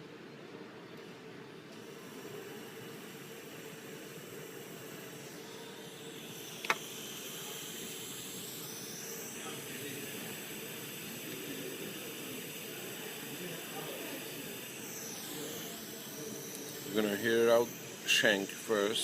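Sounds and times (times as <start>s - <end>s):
torch flame hissing: 1.8s - 19.0s
sharp click: 6.6s - 6.9s.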